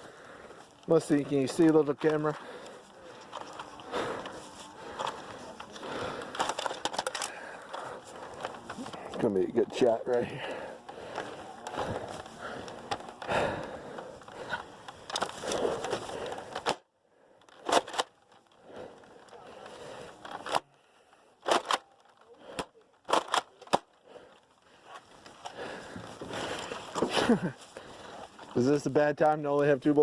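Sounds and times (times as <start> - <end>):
rustling handling noise: 0.0 - 30.0
toy blaster clicks and knocks: 6.2 - 7.4, 21.4 - 24.0.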